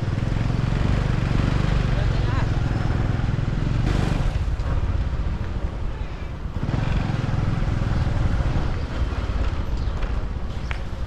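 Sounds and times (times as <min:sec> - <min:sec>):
motorbike engine running: 0:00.0 - 0:09.9
wind rumbling on microphone: 0:00.0 - 0:11.0.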